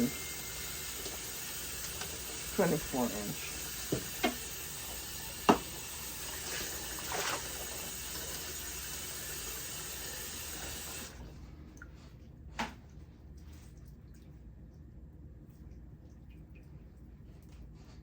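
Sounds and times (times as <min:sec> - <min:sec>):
tap water running into sink: 0:00.0 - 0:11.2.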